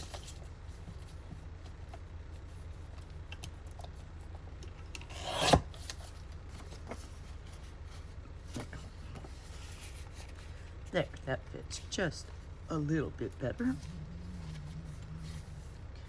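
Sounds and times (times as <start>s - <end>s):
paper rasping scrape: 5.1s - 5.6s, 13.6s - 15.8s.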